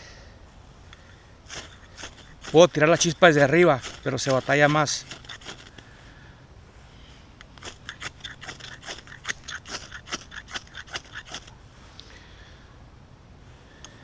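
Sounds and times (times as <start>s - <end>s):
scraper on ferro rod: 1.5s - 5.8s, 7.6s - 11.5s.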